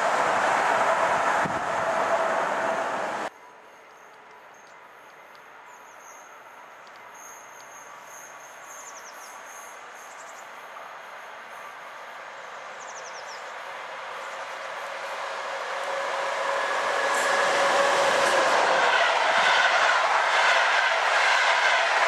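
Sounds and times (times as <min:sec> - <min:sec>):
train running noise: 0:00.0 - 0:22.0.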